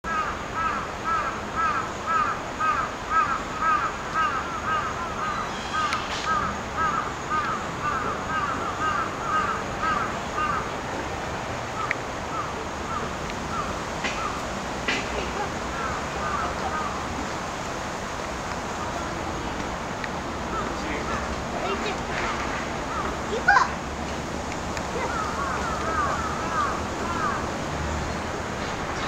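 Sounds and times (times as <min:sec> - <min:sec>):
bird calling: 0:00.1 - 0:10.8, 0:11.7 - 0:17.5, 0:20.5 - 0:23.8, 0:24.7 - 0:29.0.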